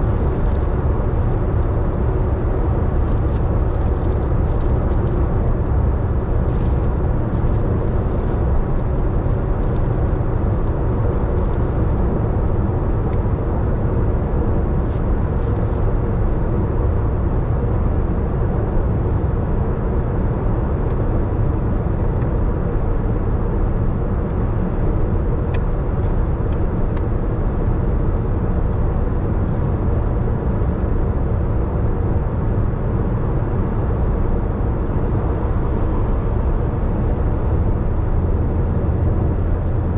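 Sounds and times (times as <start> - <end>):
car driving on wet road: 0.0 - 14.2.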